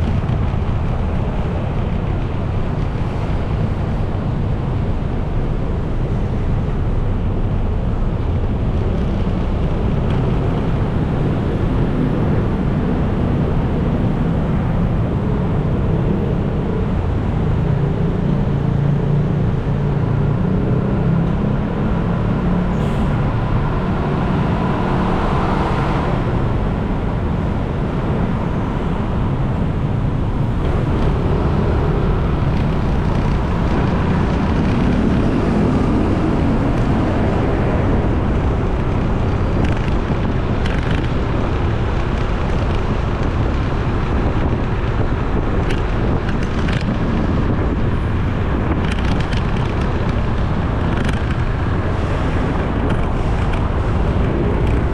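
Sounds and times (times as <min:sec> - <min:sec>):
road noise: 0:00.0 - 0:54.9
wind on microphone: 0:00.0 - 0:54.9
motorcycle engine: 0:21.2 - 0:38.6.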